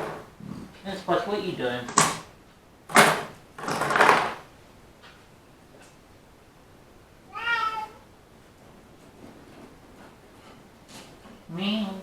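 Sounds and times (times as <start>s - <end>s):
cat meow: 7.3s - 8.1s.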